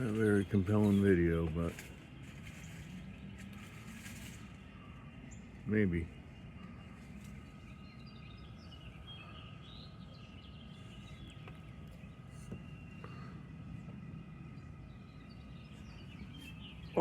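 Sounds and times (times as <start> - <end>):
faint bird chirps: 0.0 - 17.0
faint hum: 2.9 - 17.0.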